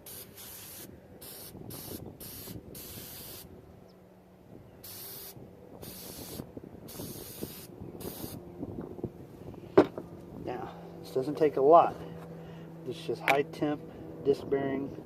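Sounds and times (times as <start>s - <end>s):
aerosol can hissing squirts: 0.1s - 3.4s, 4.9s - 8.4s.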